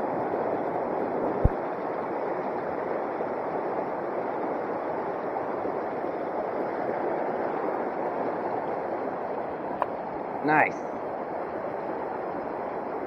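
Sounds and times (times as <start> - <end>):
creek water rushing over rocks: 0.1 - 4.8.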